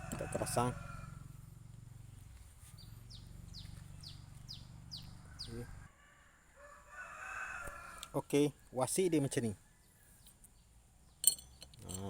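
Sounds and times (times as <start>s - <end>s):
bird chirping: 2.0s - 5.9s, 9.7s - 12.0s.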